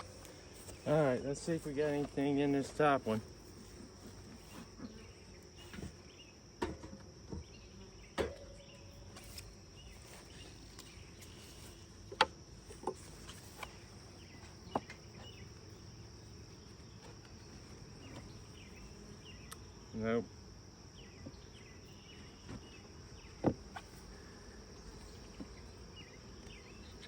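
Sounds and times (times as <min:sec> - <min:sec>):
knocks of wooden hive frames: 0:00.0 - 0:09.5, 0:12.0 - 0:15.5, 0:22.4 - 0:26.9
high-pitched insect trill: 0:00.0 - 0:27.0.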